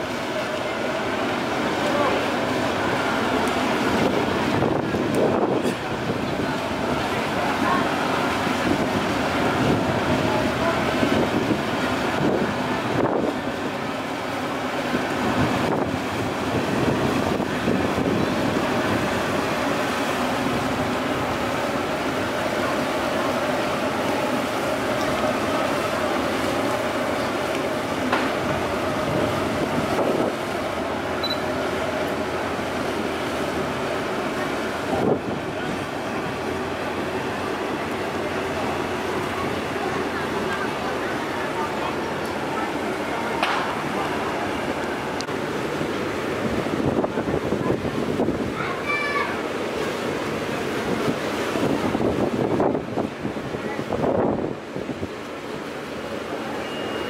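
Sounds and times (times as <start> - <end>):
passenger ship engine noise: 0.0 - 57.0
strong wind buffeting microphone: 2.7 - 14.0, 14.6 - 26.1, 27.7 - 31.2, 31.8 - 55.4
wind noise: 3.9 - 6.5, 28.4 - 30.5, 46.3 - 48.7, 50.8 - 55.2.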